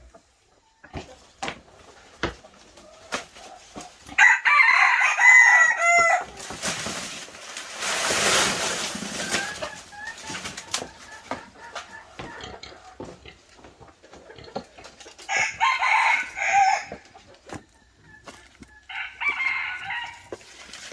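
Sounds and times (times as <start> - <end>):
rooster crowing: 4.2 - 6.3, 15.3 - 17.0, 18.8 - 20.4
rustling noise: 6.2 - 12.0, 16.9 - 20.9.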